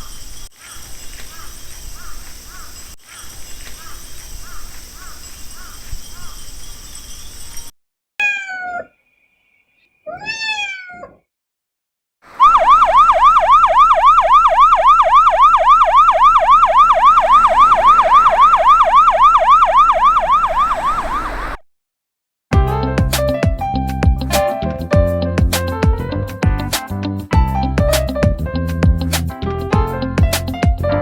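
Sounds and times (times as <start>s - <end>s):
cat meowing: 8.2s - 9.0s, 10.1s - 11.2s
electronic yelp siren: 12.3s - 21.6s.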